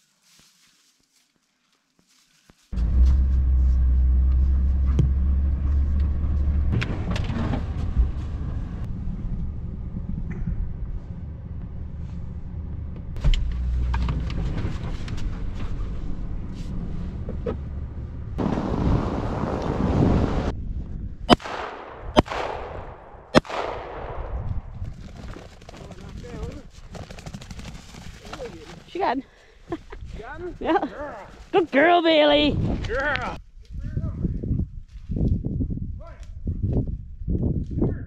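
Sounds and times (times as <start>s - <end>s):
vehicle engine droning: 2.8s - 20.5s.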